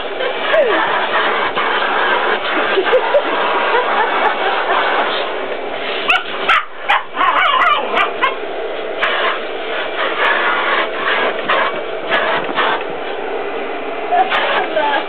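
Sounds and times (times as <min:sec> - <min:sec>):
vacuum cleaner running: 0:00.0 - 0:15.0
puppy barking: 0:06.1 - 0:08.4.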